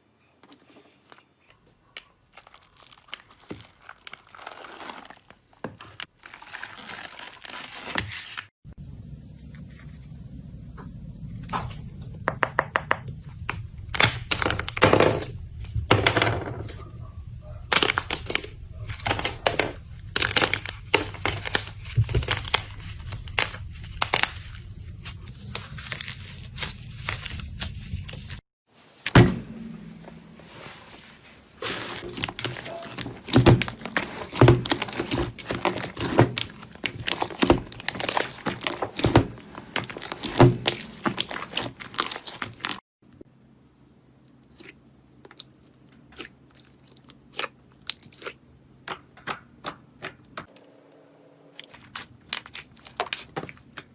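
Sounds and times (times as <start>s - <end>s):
slime crackling and popping: 32.1s - 42.8s.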